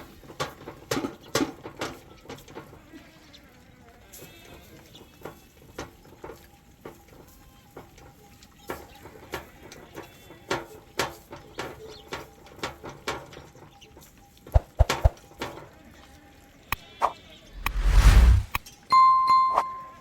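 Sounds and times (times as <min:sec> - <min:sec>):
sheep and goats bleating: 0:02.7 - 0:05.6, 0:09.3 - 0:10.7.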